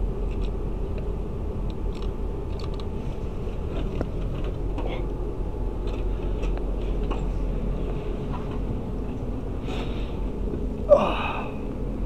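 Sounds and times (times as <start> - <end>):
train carriage interior rumble: 0.0 - 12.0.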